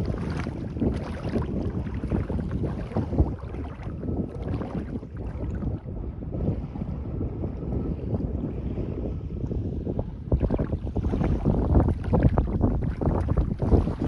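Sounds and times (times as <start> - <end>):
sea waves: 0.0 - 5.3
wind buffeting microphone: 0.0 - 14.0.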